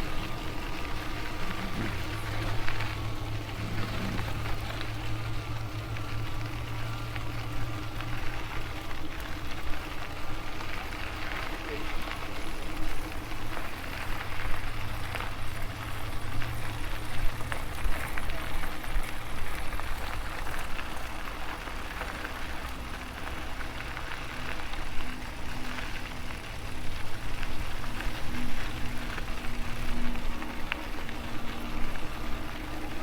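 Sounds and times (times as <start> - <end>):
faint pulsing hum: 0.0 - 8.8.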